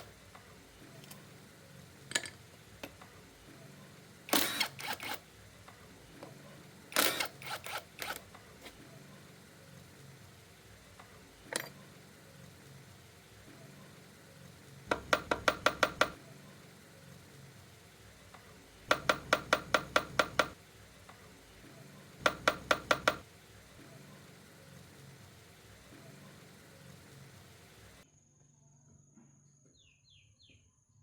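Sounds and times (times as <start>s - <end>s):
sharp knocks: 14.9s - 16.2s, 18.9s - 20.6s, 22.2s - 23.2s.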